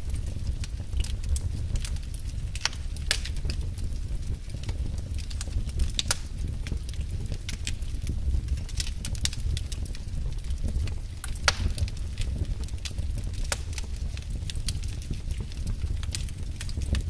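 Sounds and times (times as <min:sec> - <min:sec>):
fire crackling: 0:00.0 - 0:17.0.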